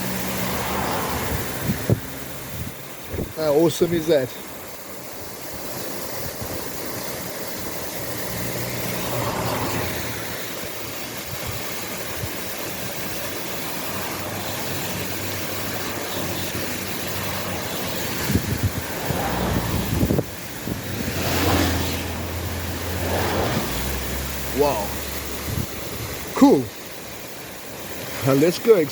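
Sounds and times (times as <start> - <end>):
waterfall rushing: 0.0 - 28.9
wind buffeting microphone: 1.2 - 3.4, 18.0 - 21.6, 25.1 - 26.3
low engine hum: 4.2 - 28.5.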